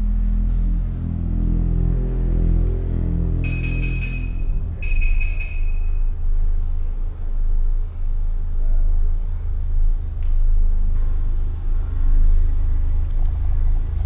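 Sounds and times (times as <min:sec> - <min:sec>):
high tone: 0:00.0 - 0:06.5
deep low rumble: 0:00.0 - 0:14.0.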